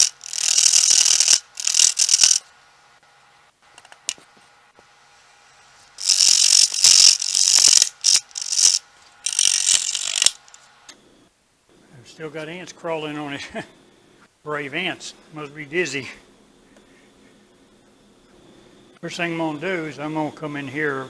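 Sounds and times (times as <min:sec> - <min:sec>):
lathe tool scraping wood: 0:00.0 - 0:02.4, 0:06.0 - 0:10.4.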